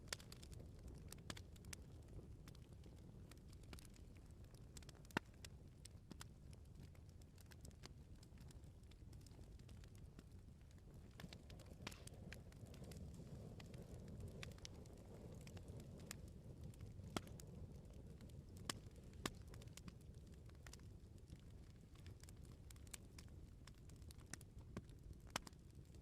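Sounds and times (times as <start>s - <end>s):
wood bonfire crackling: 0.0s - 26.0s.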